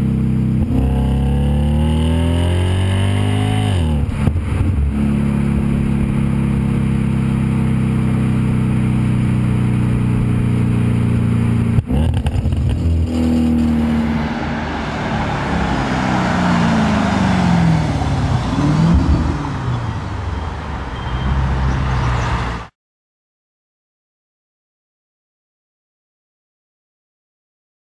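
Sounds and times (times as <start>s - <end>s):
car exhaust drone: 0.0s - 20.8s
road noise: 0.0s - 22.8s.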